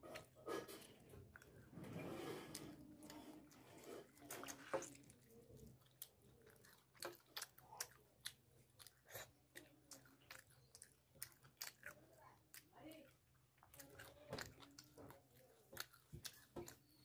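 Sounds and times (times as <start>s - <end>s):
person chewing with wet smacks: 0.0s - 17.0s.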